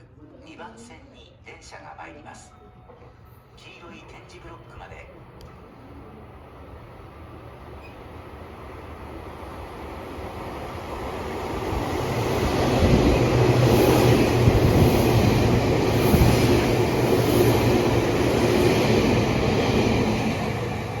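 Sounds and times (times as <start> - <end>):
train wheels rumbling on rails: 7.3 - 21.0.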